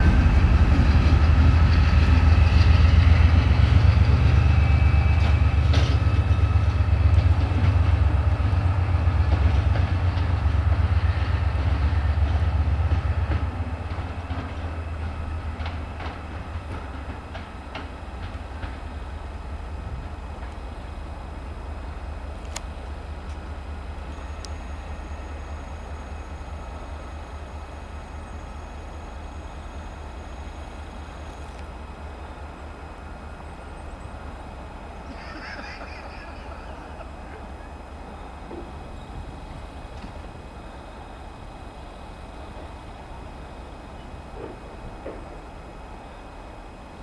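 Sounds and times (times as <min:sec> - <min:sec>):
wheels clicking over rail joints: 0:00.0 - 0:20.7, 0:42.5 - 0:45.8
diesel locomotive rumble: 0:00.0 - 0:47.0.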